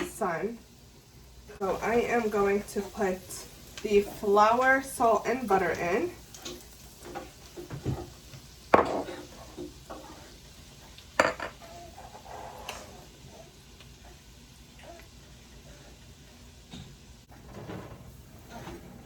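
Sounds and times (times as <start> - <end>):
onions sizzling in butter: 0.0 - 17.2
utensil stirring and clinking: 5.7 - 12.9
kitchenware clanking on pan: 8.7 - 9.3, 11.2 - 11.6.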